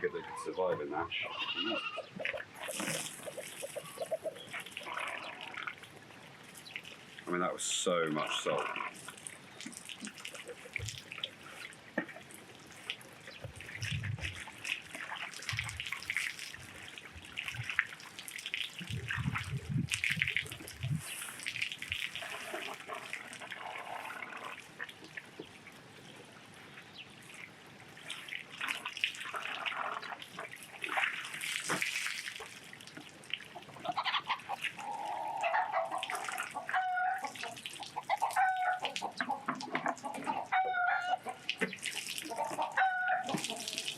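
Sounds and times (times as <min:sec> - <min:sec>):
hen clucking: 0:00.0 - 0:05.8, 0:10.0 - 0:11.0, 0:33.5 - 0:43.9
water splashing and trickling: 0:00.0 - 0:43.9.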